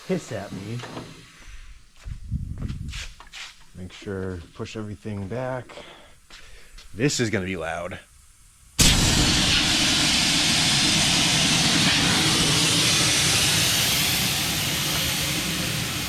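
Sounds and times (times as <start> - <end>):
compressed air venting hiss: 0.0 - 16.0.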